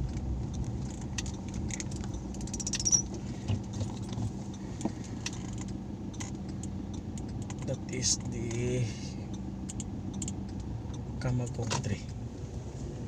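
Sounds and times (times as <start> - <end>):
car engine and road rumble: 0.0 - 13.0
short high squeak: 2.7 - 3.1.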